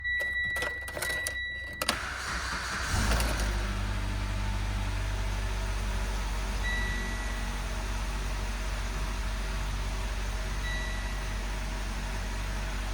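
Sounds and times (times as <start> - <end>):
car engine cranking: 0.2 - 9.0
car engine idling: 1.9 - 12.9.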